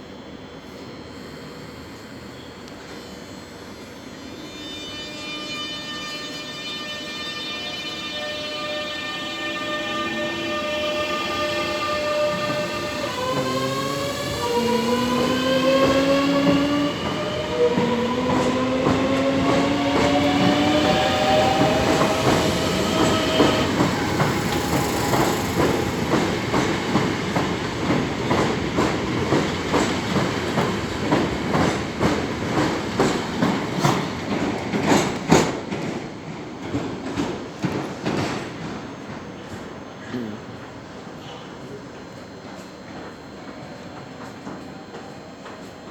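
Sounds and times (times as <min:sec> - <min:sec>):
electric train motors whining: 0:04.3 - 0:28.1.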